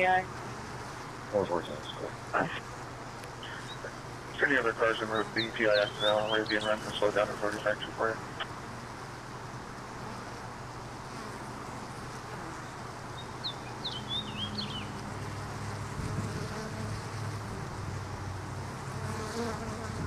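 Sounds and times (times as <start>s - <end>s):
honey bees buzzing: 0.0s - 20.0s
bird chirping: 3.4s - 7.2s, 13.2s - 15.0s.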